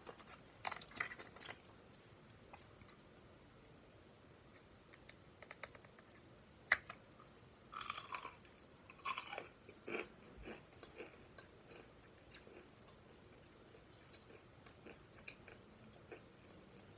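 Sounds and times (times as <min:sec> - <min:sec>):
crunchy bites: 0:07.7 - 0:11.8
person chewing food: 0:07.8 - 0:16.9.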